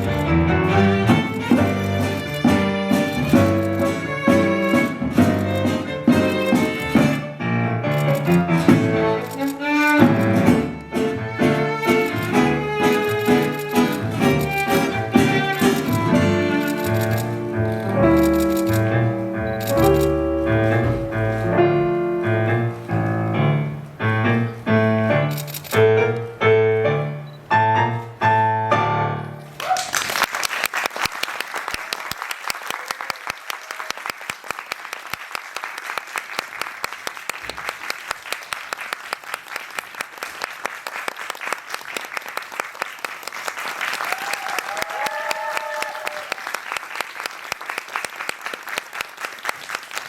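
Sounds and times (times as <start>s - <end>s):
piano chords: 0.0s - 29.6s
audience applause: 29.6s - 50.0s.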